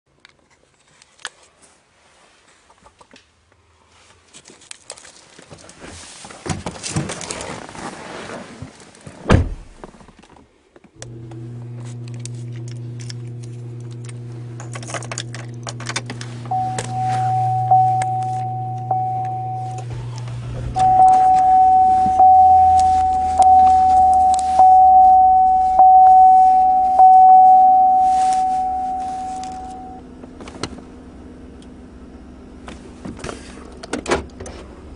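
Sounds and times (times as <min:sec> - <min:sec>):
truck engine starting and running: 0:11.0 - 0:34.9
high-pitched tone: 0:16.5 - 0:20.0, 0:20.8 - 0:30.0.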